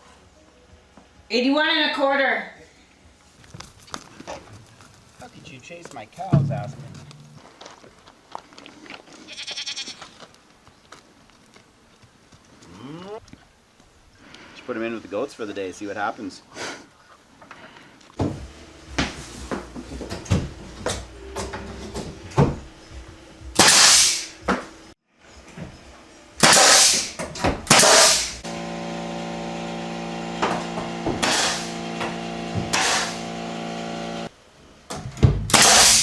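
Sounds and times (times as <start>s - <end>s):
steady hum: 6.3s - 7.4s
loud hissing bursts: 20.4s - 24.9s, 26.4s - 28.6s, 31.2s - 34.4s, 35.4s - 36.0s.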